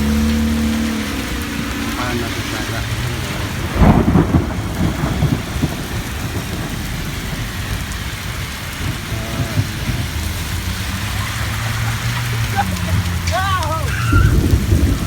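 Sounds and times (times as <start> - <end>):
rain falling on a street: 0.0 - 15.0
thunder rumbling: 0.0 - 15.0.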